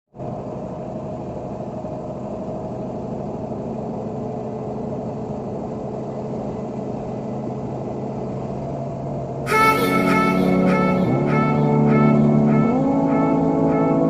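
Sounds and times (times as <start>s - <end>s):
diesel engine running: 9.5s - 14.0s.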